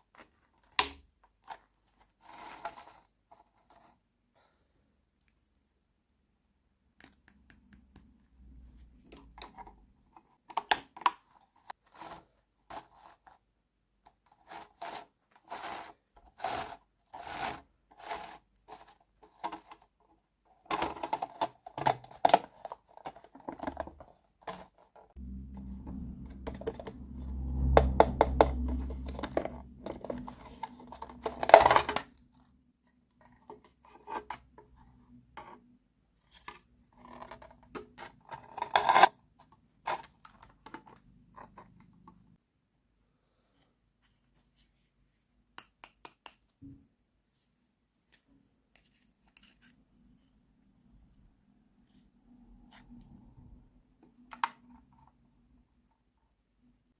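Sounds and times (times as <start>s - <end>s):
low steady hum: 25.2s - 31.7s.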